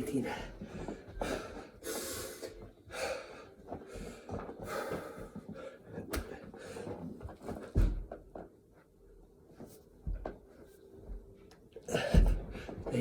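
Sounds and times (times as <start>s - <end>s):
man breathing hard and gasping: 0.6s - 7.1s.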